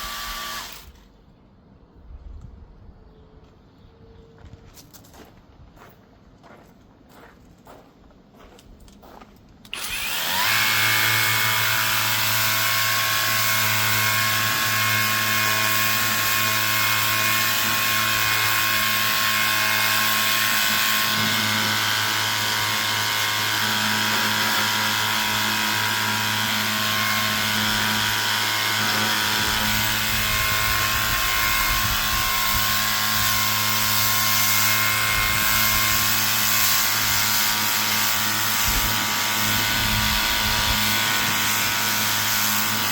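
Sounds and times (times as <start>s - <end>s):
pressure washer motor running: 0.0s - 0.8s, 9.8s - 42.9s.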